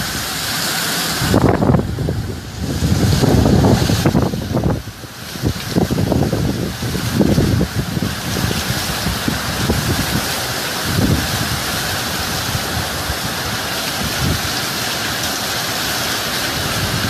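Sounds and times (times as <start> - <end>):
hurricane wind and rain: 0.0 - 17.0
wind buffeting microphone: 1.0 - 15.2, 16.4 - 17.0.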